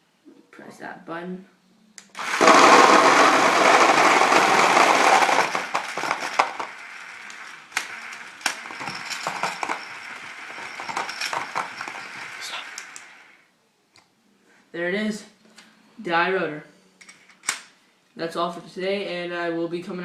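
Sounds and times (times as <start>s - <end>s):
balls falling and bouncing: 2.2s - 13.2s
paintballs clattering out of loader: 2.2s - 13.2s.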